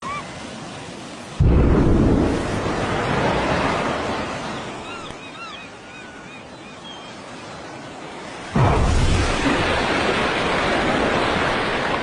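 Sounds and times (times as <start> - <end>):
explosion boom with low rumble: 1.4 - 3.1, 8.6 - 10.8.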